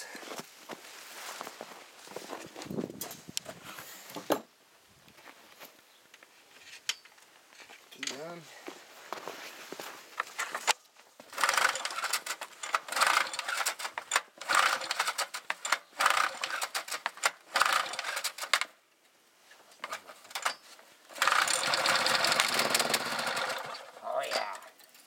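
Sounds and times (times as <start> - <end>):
small engine cranking: 11.3 - 18.7, 19.8 - 25.0.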